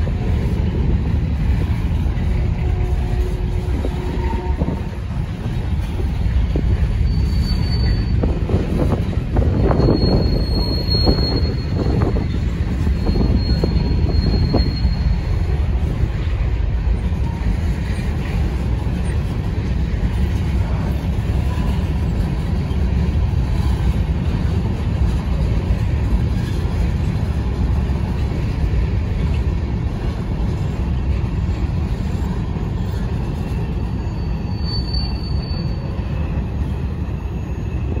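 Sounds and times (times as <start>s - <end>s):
train wheels rumbling on rail: 0.0s - 38.0s
high thin wheel squeal: 6.8s - 8.6s, 9.5s - 15.6s, 33.3s - 38.0s.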